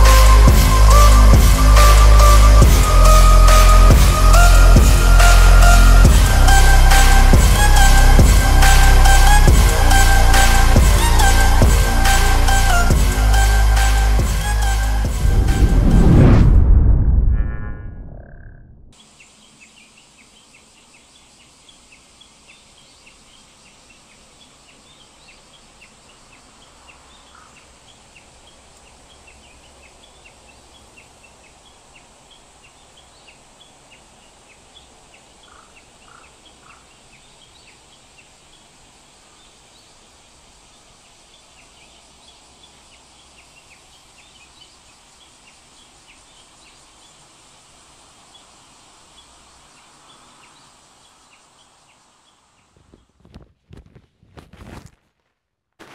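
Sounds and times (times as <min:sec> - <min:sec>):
music track: 0:00.0 - 0:16.7
low steady rumble: 0:12.7 - 0:19.0
small birds chirping: 0:18.2 - 0:53.5.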